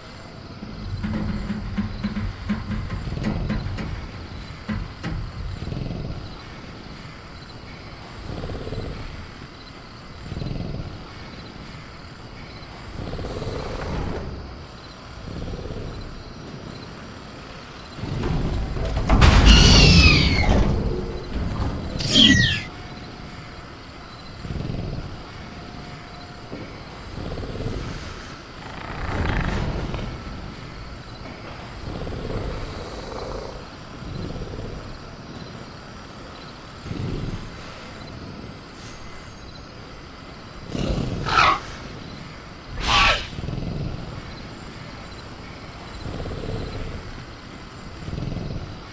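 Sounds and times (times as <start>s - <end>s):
faint crickets chirping: 0.0s - 48.9s
jungle noise: 0.0s - 48.9s
dinosaur growling low: 12.8s - 18.9s, 19.6s - 22.7s, 24.3s - 35.4s, 40.5s - 42.0s, 45.5s - 48.9s.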